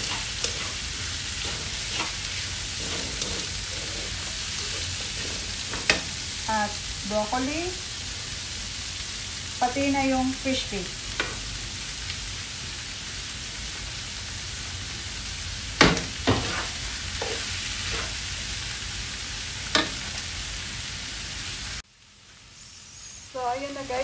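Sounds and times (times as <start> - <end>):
food sizzling in a wok: 0.0 - 24.0
spatula knocking on pan: 15.8 - 16.6.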